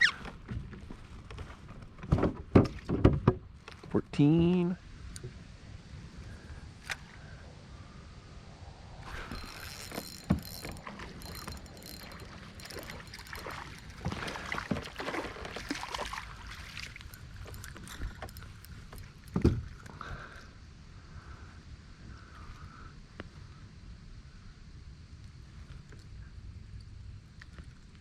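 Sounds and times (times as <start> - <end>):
rustling and small clicks: 9.1 - 14.9, 17.0 - 20.0.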